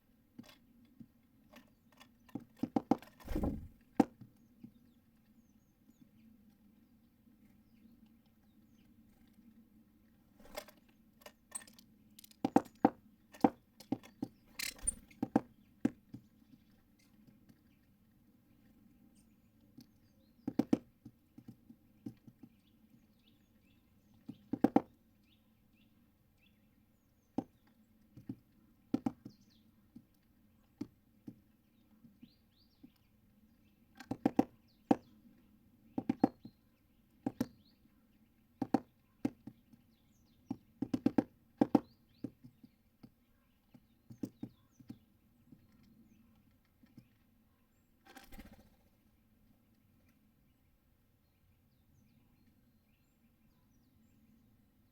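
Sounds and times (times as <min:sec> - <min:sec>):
birds pecking at seeds: 0:06.0 - 0:25.4.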